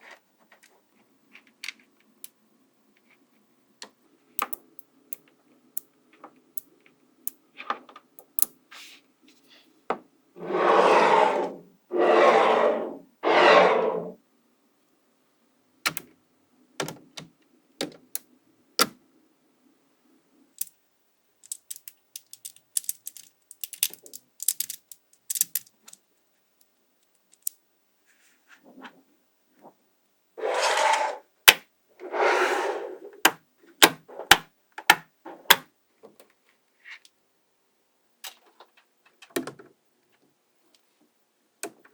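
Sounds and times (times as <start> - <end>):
rustling swishes: 30.4 - 31.2.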